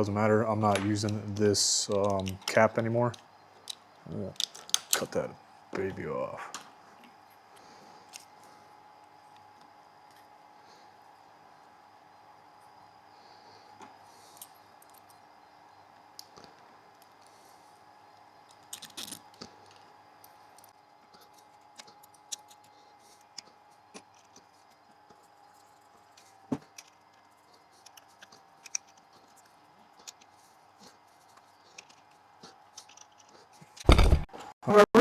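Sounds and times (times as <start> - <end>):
faint steady hum: 0.0 - 35.0
small clicks of wire handling: 0.6 - 5.9, 6.5 - 10.3, 13.8 - 15.2, 16.2 - 17.4, 18.1 - 34.0.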